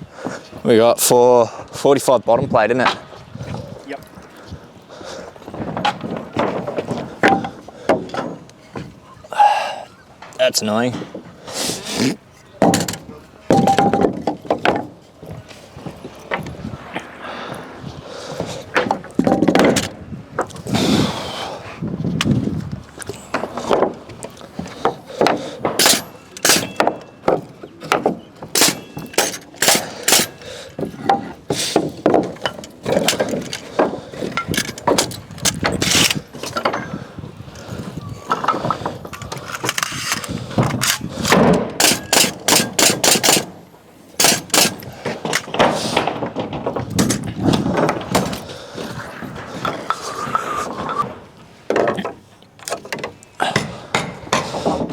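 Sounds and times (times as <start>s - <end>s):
hammer nailing timber: 12.6s - 14.9s, 24.8s - 36.8s, 40.6s - 43.6s, 44.2s - 48.4s.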